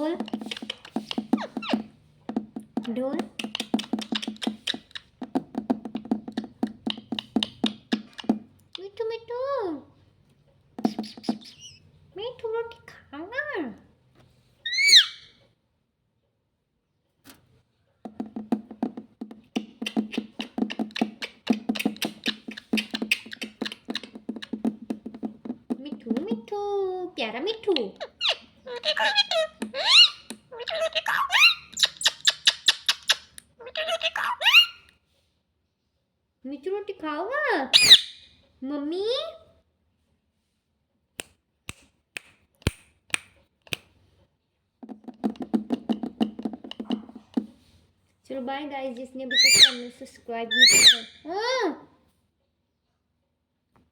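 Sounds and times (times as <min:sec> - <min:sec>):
rapid woody clicking: 0:00.2 - 0:08.4, 0:18.1 - 0:26.3, 0:44.8 - 0:47.5.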